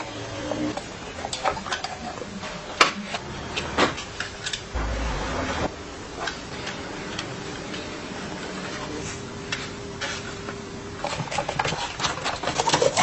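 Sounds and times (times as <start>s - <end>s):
low rumble: 4.7s - 6.8s.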